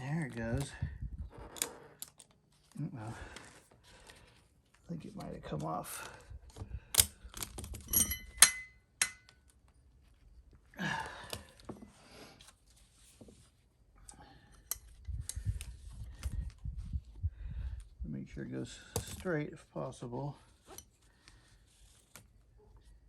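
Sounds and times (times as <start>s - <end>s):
metal tools clinking: 7.7s - 9.3s.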